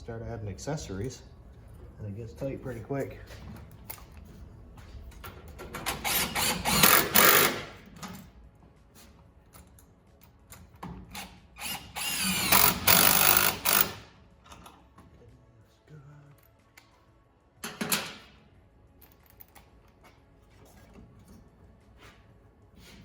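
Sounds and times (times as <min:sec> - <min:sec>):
impact driver whirring: 0:05.9 - 0:07.8, 0:11.6 - 0:14.1.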